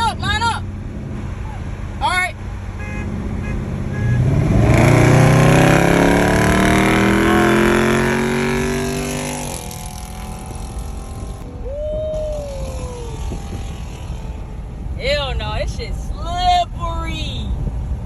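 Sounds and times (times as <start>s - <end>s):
car engine accelerating hard: 2.6s - 11.6s, 12.3s - 15.2s.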